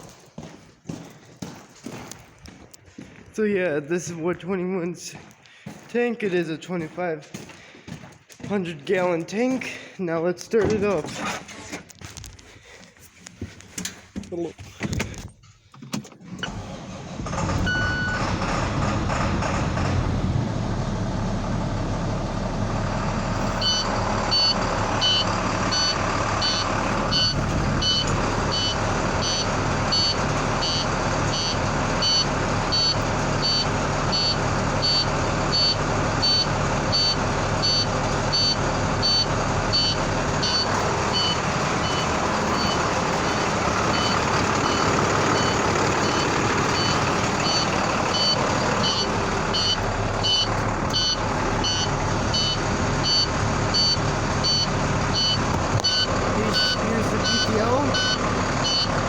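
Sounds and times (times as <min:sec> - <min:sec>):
truck engine running: 0:16.4 - 0:59.0
high electronic beeps: 0:23.6 - 0:44.8, 0:46.8 - 0:58.9.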